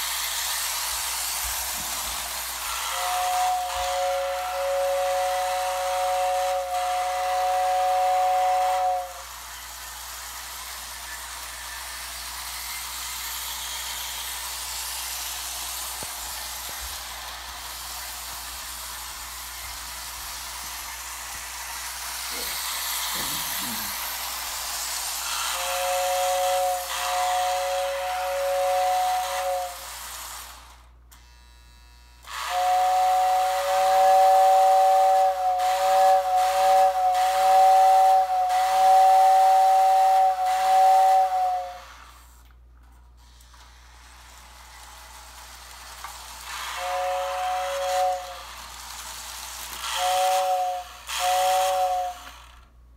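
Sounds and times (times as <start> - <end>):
running train hiss: 0.0 - 31.0, 32.2 - 42.5, 43.8 - 52.7
model train whistle two-note chord: 2.6 - 9.4, 25.4 - 29.9, 32.3 - 42.0, 46.6 - 48.5, 49.8 - 52.4.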